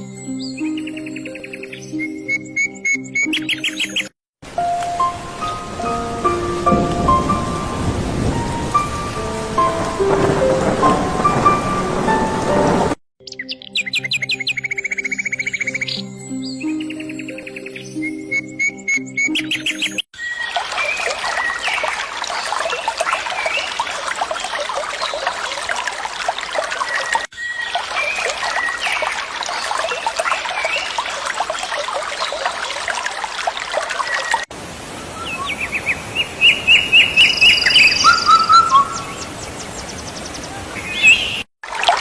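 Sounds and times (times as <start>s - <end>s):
single bird singing: 0.3s - 4.1s, 13.2s - 20.6s, 35.2s - 41.5s
chorus of small birds chirping: 35.2s - 41.4s.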